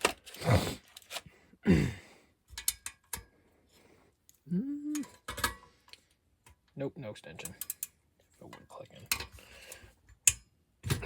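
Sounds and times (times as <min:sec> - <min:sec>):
hand tools clicking and clinking: 0:02.5 - 0:03.3, 0:04.9 - 0:05.7, 0:07.4 - 0:08.0.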